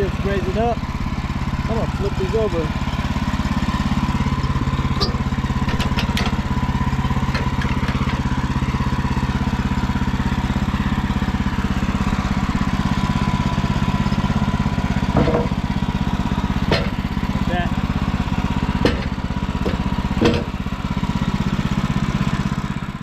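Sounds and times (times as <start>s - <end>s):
engine idling: 0.0s - 23.0s
wooden boards knocking: 15.1s - 15.6s, 18.8s - 20.5s.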